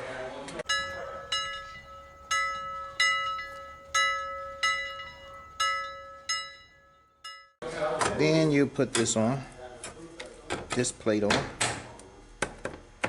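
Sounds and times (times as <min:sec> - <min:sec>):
bell-like chime strikes: 0:00.7 - 0:07.5
steady held tone: 0:00.7 - 0:07.5.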